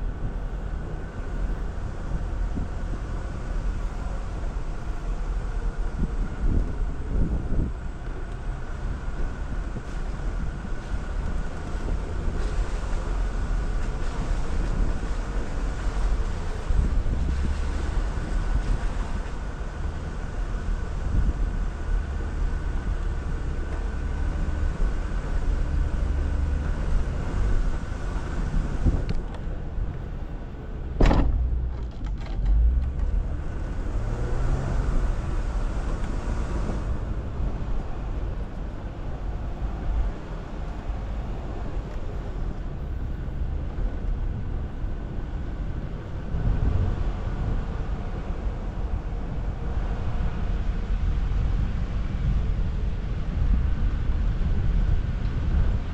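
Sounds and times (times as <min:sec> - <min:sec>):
car engine running low: 0:00.0 - 0:55.9
sharp knocks: 0:31.0 - 0:32.2.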